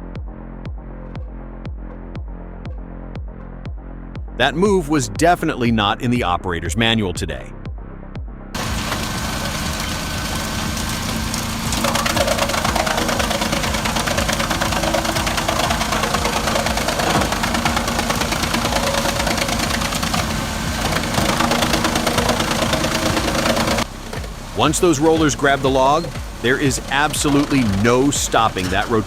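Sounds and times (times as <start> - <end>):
tractor engine driving wood chipper: 8.6 - 29.0.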